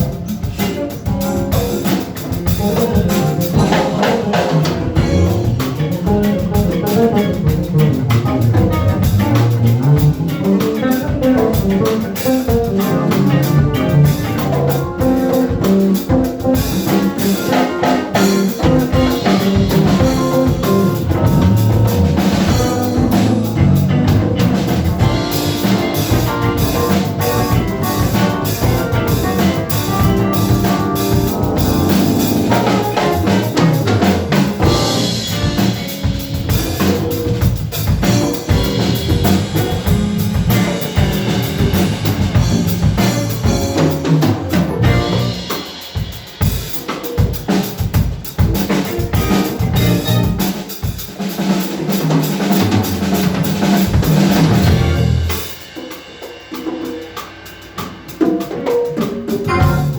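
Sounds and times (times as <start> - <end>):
drum hits: 0.0 - 45.4, 59.4 - 59.9
live band playing: 0.0 - 59.9.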